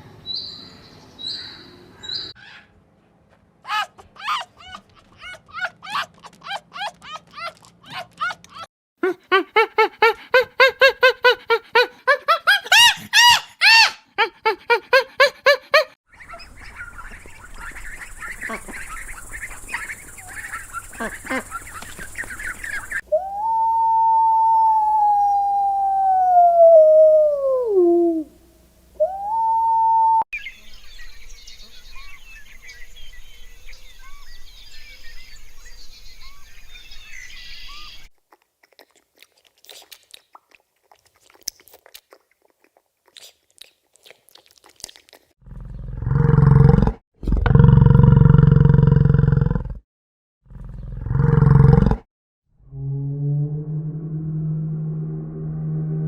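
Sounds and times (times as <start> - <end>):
faint birdsong: 0.0 - 3.2, 16.1 - 23.2, 30.4 - 38.1, 50.5 - 51.1
animal calling rapidly: 3.7 - 8.7, 16.1 - 26.5
animal howling: 23.1 - 28.4, 29.0 - 30.2.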